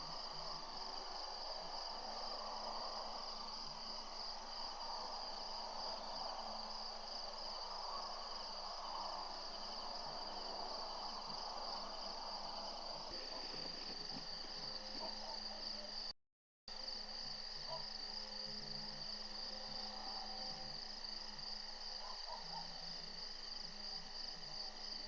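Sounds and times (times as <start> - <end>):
crickets chirring: 0.0 - 16.1.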